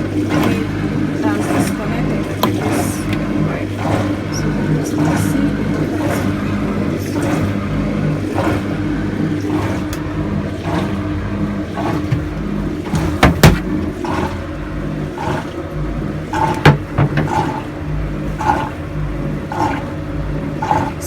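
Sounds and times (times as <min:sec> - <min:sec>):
low mechanical hum: 0:00.0 - 0:21.0
sharp knocks: 0:12.0 - 0:13.8, 0:16.4 - 0:17.6.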